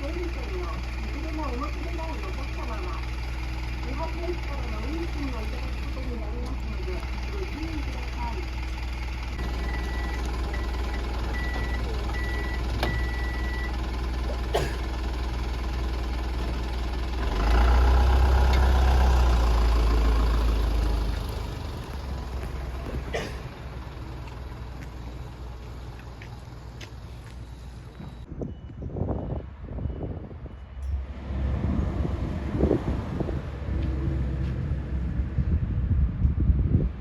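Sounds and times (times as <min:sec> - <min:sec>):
diesel engine rumbling: 0:00.0 - 0:37.0
high electronic beeping: 0:09.4 - 0:13.8.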